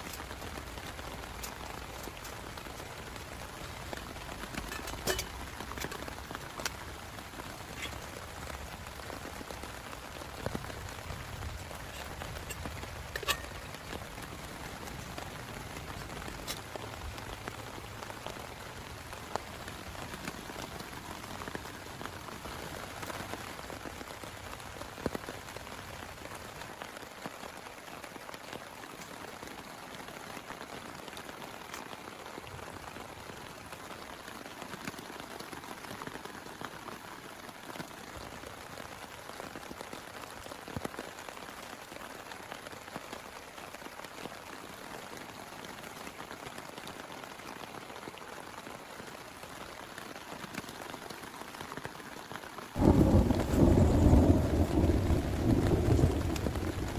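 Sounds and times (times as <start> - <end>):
loud raindrops striking: 0.0 - 26.9, 52.8 - 56.9
steady rain falling: 0.0 - 56.9
low rumble: 52.8 - 56.9.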